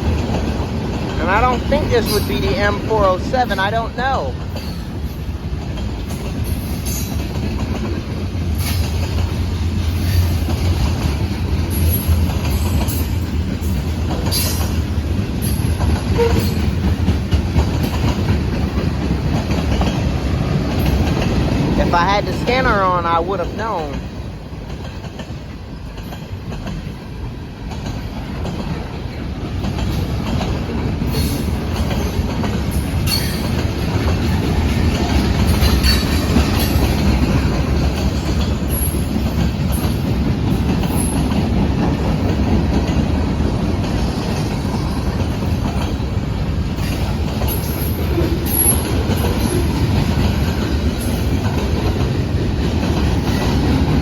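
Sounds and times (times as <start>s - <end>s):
freight train wheels rumbling on rail: 0.0s - 54.0s.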